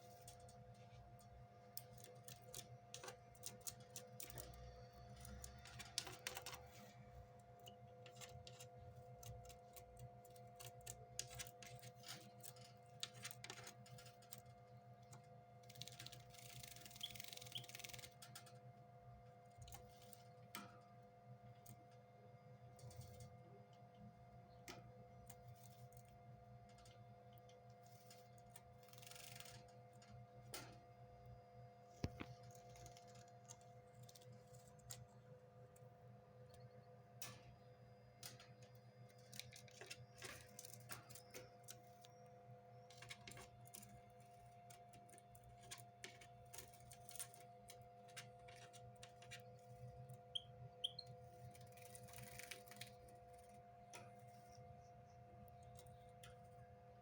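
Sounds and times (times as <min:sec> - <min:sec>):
low electrical hum: 0:00.0 - 0:57.0
bird peeps: 0:50.3 - 0:51.1.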